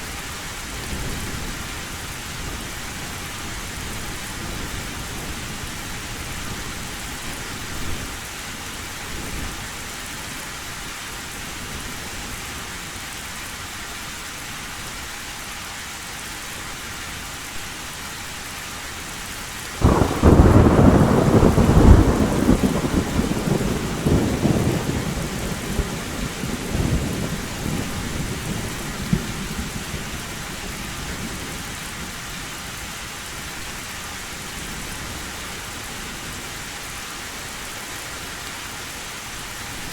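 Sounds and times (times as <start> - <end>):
heavy rain on a metal roof: 0.0 - 39.9
thunderclap rumbling: 19.8 - 30.4.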